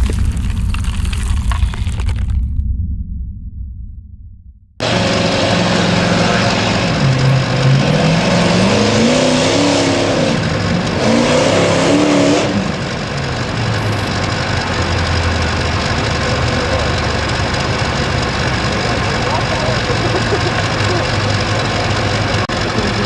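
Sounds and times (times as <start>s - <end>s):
truck engine at full throttle: 4.8s - 23.0s.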